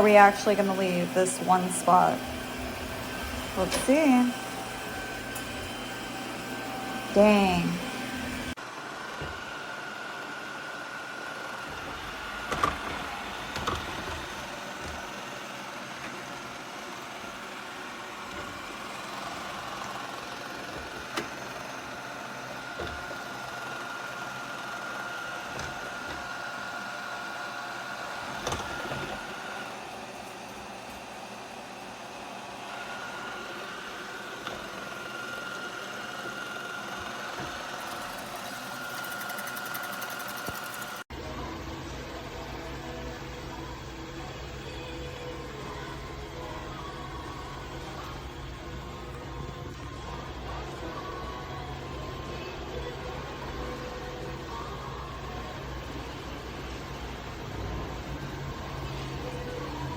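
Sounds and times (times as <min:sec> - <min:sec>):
robot vacuum motor whine: 0:00.0 - 0:41.1.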